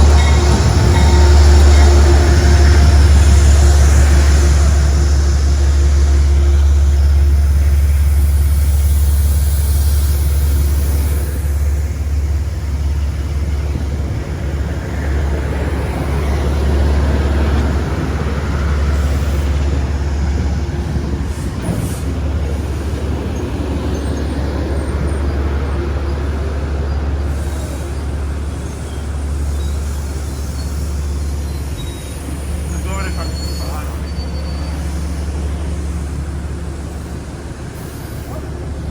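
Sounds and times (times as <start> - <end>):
train engine drone: 0.0 - 38.9
train rushing noise: 0.0 - 38.9.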